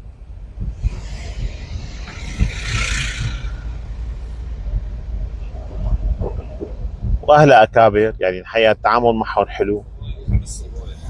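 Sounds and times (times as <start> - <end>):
steady low rumble: 0.0 - 11.0
vehicle passing with hiss: 0.8 - 4.5.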